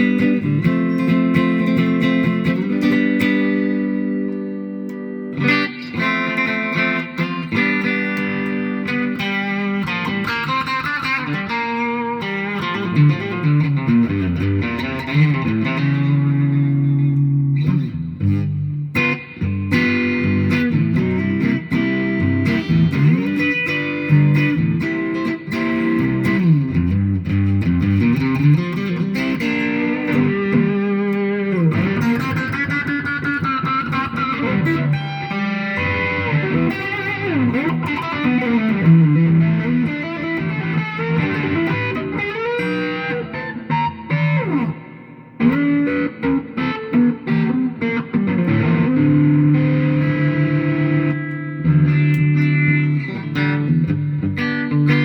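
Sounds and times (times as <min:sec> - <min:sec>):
electric guitar with string bends: 0:00.0 - 0:55.0.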